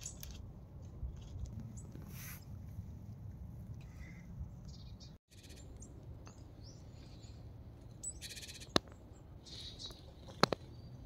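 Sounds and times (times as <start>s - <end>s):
songbirds chirping: 0.0s - 11.0s
buzzy churring bird calls: 5.3s - 5.7s, 8.0s - 8.8s.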